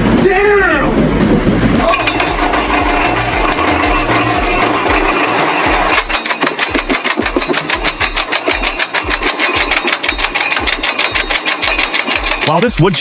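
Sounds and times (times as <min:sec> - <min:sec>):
wood chipper clatter: 0:00.0 - 0:13.0
low thumping: 0:01.1 - 0:12.4.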